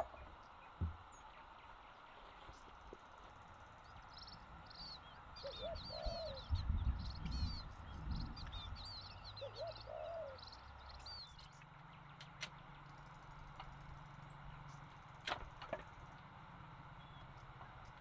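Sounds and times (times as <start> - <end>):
small birds chirping: 0.0 - 18.0
dove cooing: 4.8 - 10.7
low rumble: 5.8 - 9.4.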